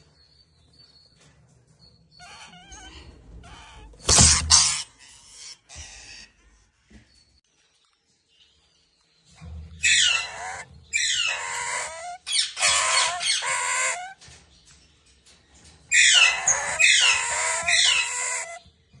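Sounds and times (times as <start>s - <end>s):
parrot squawking: 9.8s - 14.2s, 15.9s - 18.6s.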